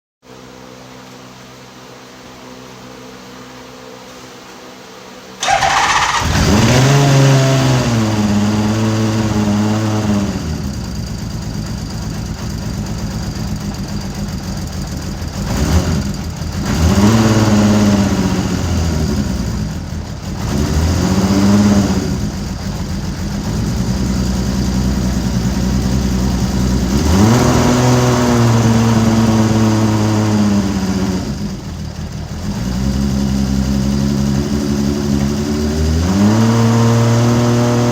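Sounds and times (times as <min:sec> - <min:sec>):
motorcycle engine idling: 0:05.4 - 0:06.9, 0:07.9 - 0:36.0
motorcycle engine revving: 0:05.4 - 0:37.9
motorcycle engine starting: 0:05.4 - 0:37.9.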